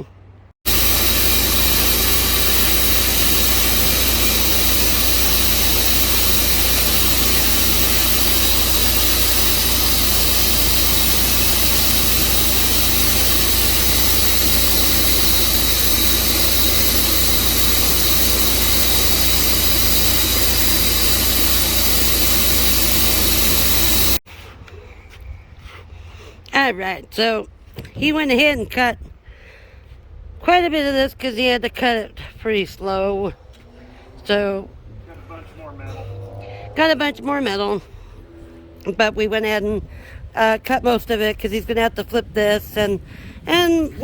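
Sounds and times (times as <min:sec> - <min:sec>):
sawmill engine droning: 0:00.7 - 0:24.2, 0:35.1 - 0:38.6.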